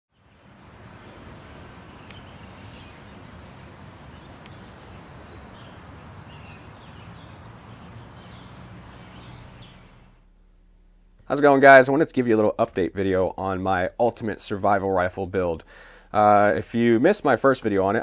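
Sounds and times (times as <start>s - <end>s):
bird chirping: 0.1s - 10.2s.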